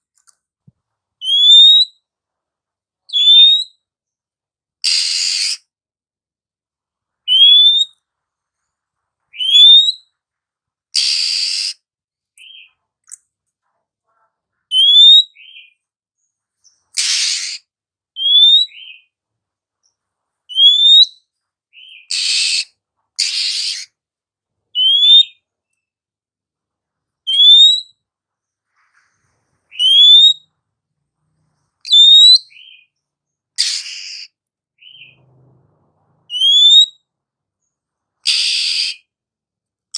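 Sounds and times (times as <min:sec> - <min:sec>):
harsh rasping bird calls: 0:04.8 - 0:05.7, 0:10.9 - 0:11.8, 0:16.6 - 0:19.1, 0:21.7 - 0:24.0, 0:33.6 - 0:35.3, 0:36.3 - 0:36.9, 0:38.2 - 0:39.1
bird rising whistles: 0:11.0 - 0:11.8, 0:36.3 - 0:36.9, 0:38.3 - 0:39.0.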